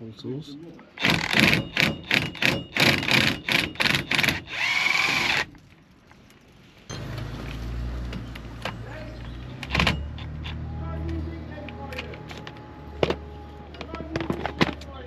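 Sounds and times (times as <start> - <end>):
sharp metal knocks: 1.0 - 4.5, 9.6 - 10.6.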